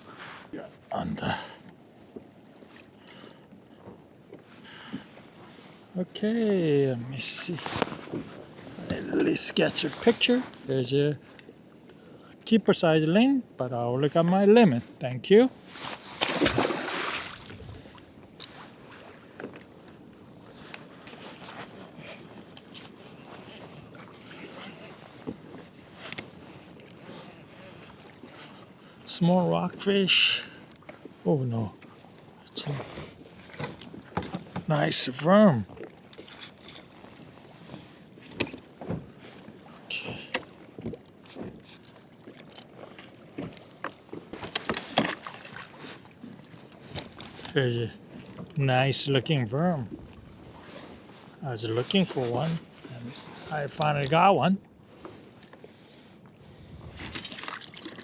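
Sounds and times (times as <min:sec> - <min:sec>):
faint water: 0:00.0 - 0:58.0
wind: 0:00.0 - 0:58.0
handling knocks and rattles: 0:43.4 - 0:45.6.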